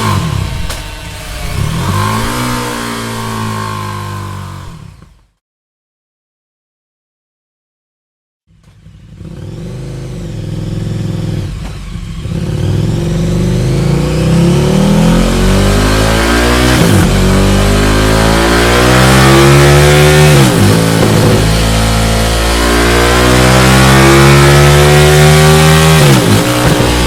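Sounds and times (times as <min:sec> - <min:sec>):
motorcycle engine accelerating: 0:00.0 - 0:05.3, 0:08.5 - 0:27.0.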